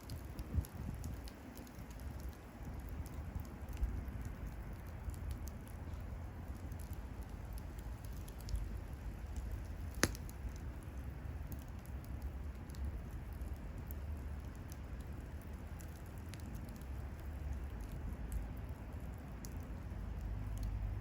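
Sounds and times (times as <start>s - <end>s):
bonfire crackling and popping: 0.0s - 21.0s
low rumble: 20.0s - 21.0s.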